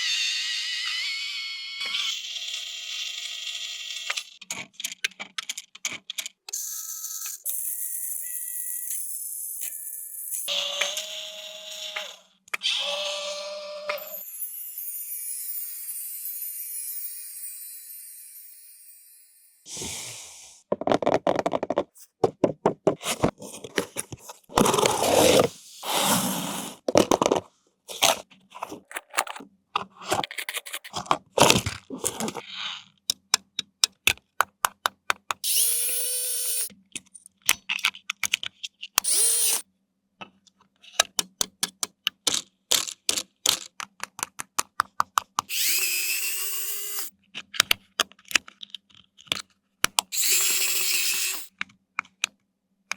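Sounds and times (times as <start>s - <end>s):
toy motor whirring: 0.0s - 4.6s, 6.5s - 19.7s, 35.4s - 36.8s, 39.0s - 39.6s, 45.5s - 47.2s, 50.1s - 51.6s
plastic parts clicking: 4.1s - 6.5s, 26.9s - 32.4s, 33.0s - 35.4s, 36.9s - 39.1s, 40.2s - 45.5s, 47.2s - 50.1s, 51.4s - 52.9s.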